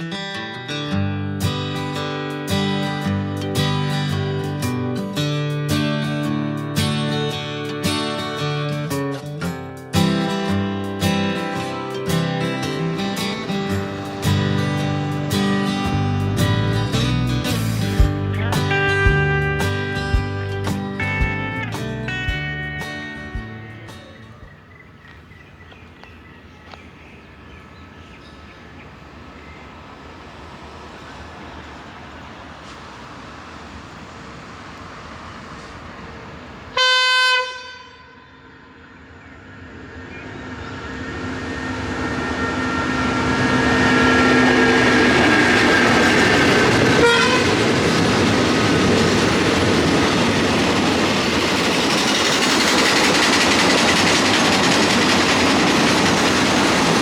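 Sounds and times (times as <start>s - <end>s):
train engine and wheel noise: 1.6s - 57.0s
train horn blast: 36.7s - 38.8s, 42.8s - 48.1s.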